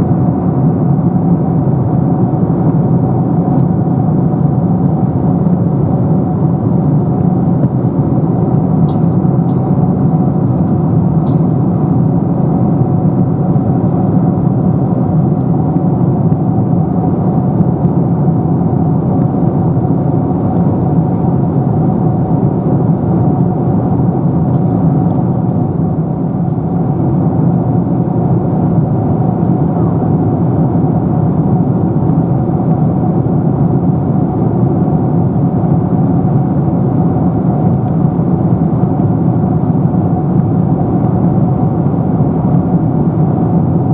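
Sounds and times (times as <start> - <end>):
faint steady hum: 0.0 - 43.9
airliner cabin rushing airflow: 1.4 - 43.9.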